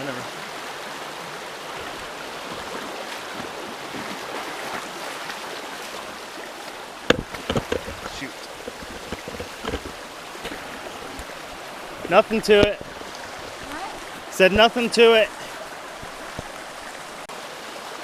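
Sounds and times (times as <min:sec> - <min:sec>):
creek water rushing: 0:00.0 - 0:18.0
splashes of person wading: 0:01.7 - 0:14.3.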